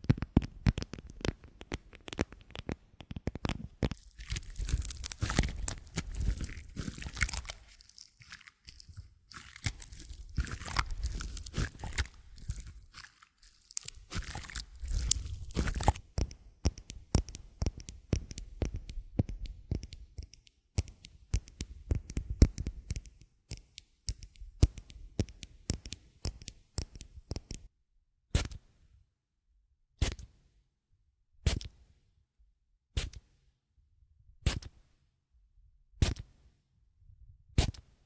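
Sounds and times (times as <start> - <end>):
crunching and crackling: 0.1 - 16.0.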